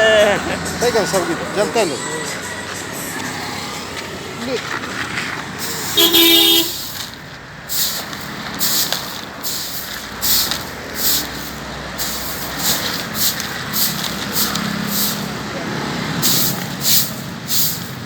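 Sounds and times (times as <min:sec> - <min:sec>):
passing traffic rumble: 0:00.0 - 0:18.0
broom sweeping grit: 0:05.2 - 0:06.1, 0:06.7 - 0:15.5, 0:16.1 - 0:18.0.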